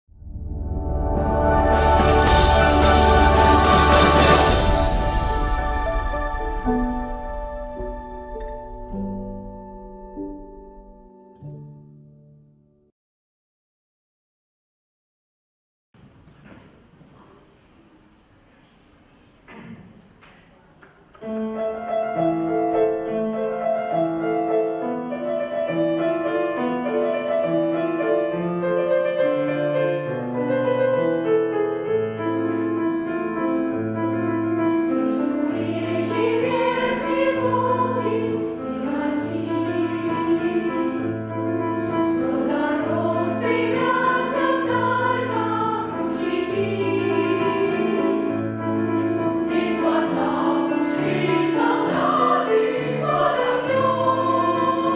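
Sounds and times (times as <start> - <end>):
instrumental accompaniment: 0.6 - 12.6
children's choir singing: 1.1 - 8.2, 34.9 - 54.9.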